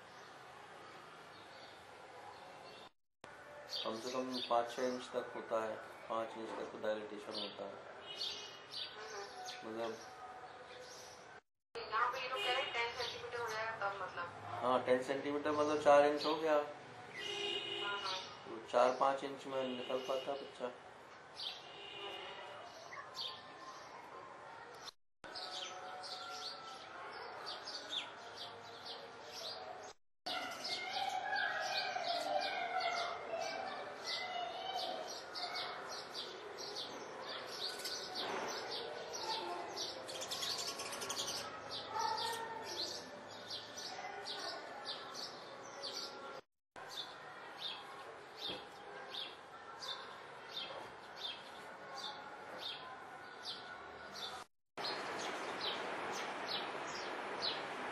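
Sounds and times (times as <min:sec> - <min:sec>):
small birds chirping: 0:21.4 - 0:46.3, 0:46.9 - 0:57.7.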